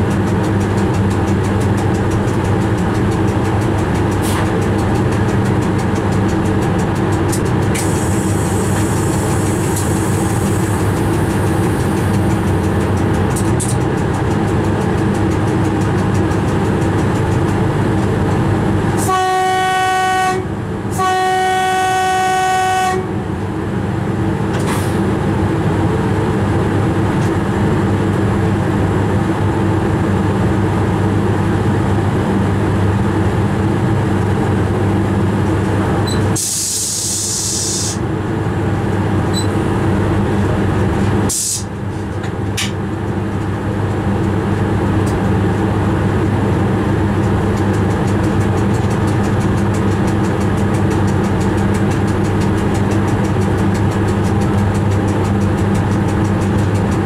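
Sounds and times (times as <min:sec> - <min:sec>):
train running hum: 0:00.0 - 0:57.0
train horn blasts: 0:19.0 - 0:23.2.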